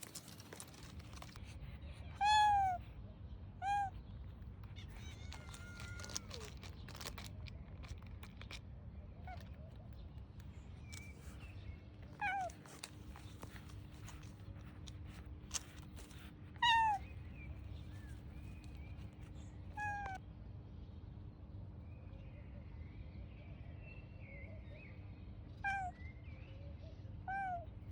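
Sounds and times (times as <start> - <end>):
cat meowing: 2.2 - 2.8, 3.6 - 4.0, 4.6 - 7.1, 12.2 - 13.7, 16.6 - 17.1, 19.8 - 20.2, 25.6 - 26.0, 27.3 - 27.7.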